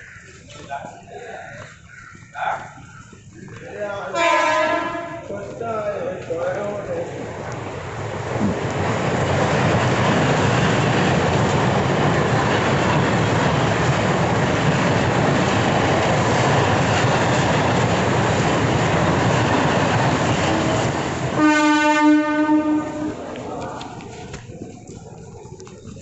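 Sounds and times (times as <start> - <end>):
train passing with rushing noise: 0.0 - 26.0
train horn: 4.1 - 5.3, 21.3 - 23.2.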